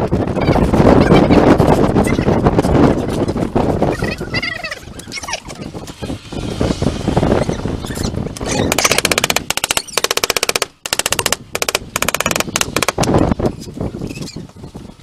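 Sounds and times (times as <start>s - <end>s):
rapid machine hammering: 8.7s - 13.1s.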